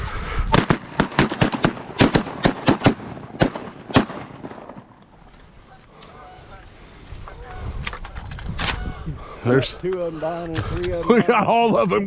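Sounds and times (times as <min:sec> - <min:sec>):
shotguns firing: 0:00.5 - 0:05.0.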